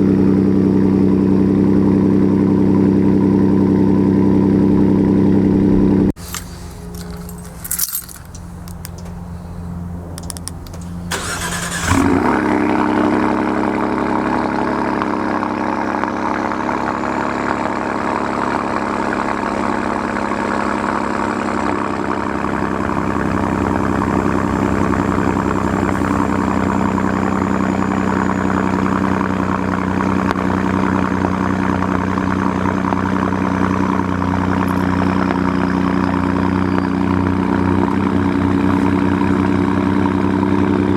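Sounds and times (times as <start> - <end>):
car engine idling loudly: 0.0 - 40.9
starter cranking: 10.1 - 12.6.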